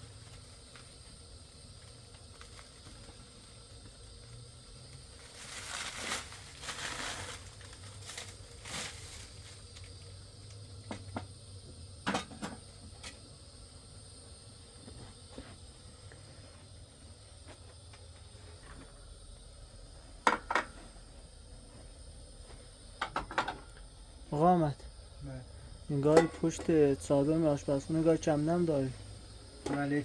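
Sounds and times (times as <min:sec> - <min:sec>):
crinkly rustling: 0:05.2 - 0:09.8.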